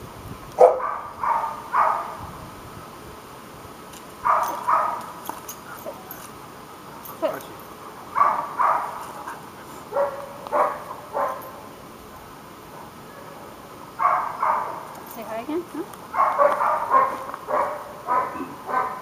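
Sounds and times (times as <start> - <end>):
dog barking: 0.6 - 2.2, 4.2 - 5.1, 8.1 - 9.1, 9.9 - 11.6, 13.1 - 14.9, 16.1 - 19.0.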